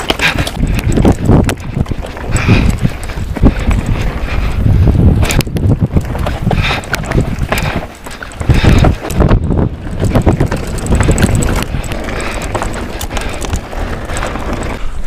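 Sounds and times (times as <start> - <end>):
bike knocking and rattling: 0.0 - 15.0
tyres on dry dirt: 0.0 - 15.0
wind buffeting microphone: 0.0 - 15.0.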